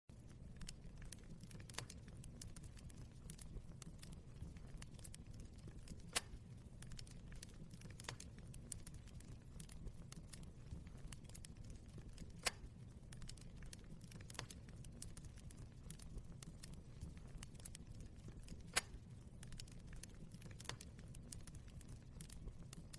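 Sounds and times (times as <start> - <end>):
fire crackling: 0.1 - 22.9.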